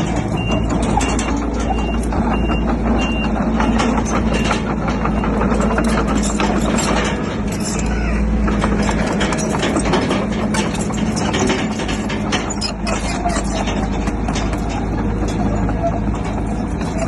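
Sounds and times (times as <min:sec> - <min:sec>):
reversing alarm beeping: 0:00.0 - 0:06.8
bulldozer diesel engine under load: 0:00.0 - 0:17.0
tracks clanking: 0:00.0 - 0:17.0.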